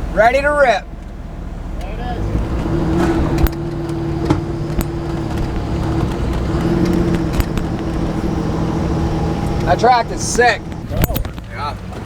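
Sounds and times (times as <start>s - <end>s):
heavy vehicle engine running: 0.0s - 12.0s
sharp clicks: 2.6s - 11.5s.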